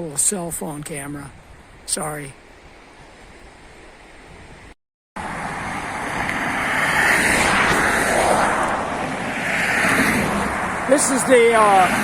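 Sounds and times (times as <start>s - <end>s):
freeway traffic rushing: 5.2s - 12.0s.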